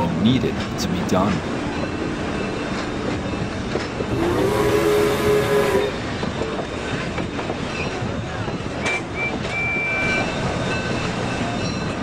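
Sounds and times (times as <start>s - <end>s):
train rumbling and clattering: 0.0s - 12.0s
train horn blast: 4.1s - 6.0s.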